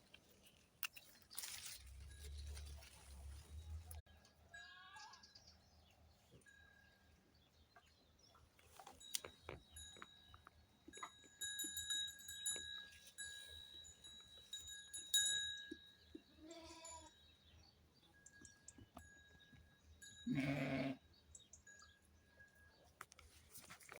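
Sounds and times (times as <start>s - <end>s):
goat bleating: 16.3s - 17.1s, 20.3s - 21.0s.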